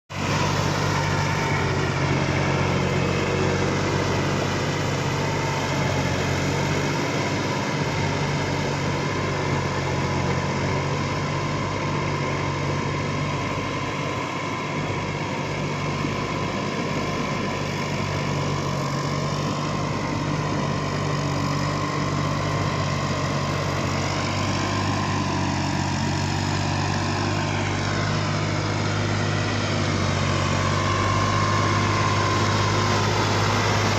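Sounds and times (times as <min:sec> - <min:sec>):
tractor diesel engine idling: 0:00.1 - 0:33.9.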